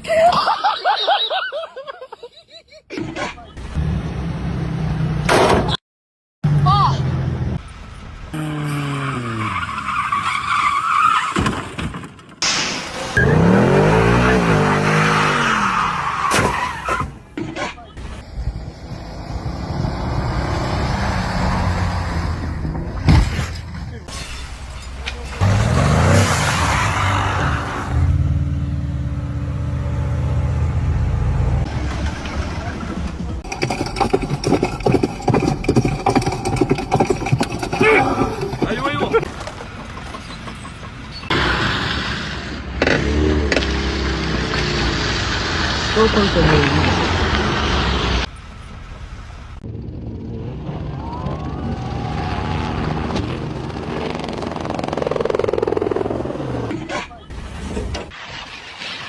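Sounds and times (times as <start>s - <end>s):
car engine revving high: 13.1s - 15.7s
motor vehicle engine running: 42.7s - 56.7s.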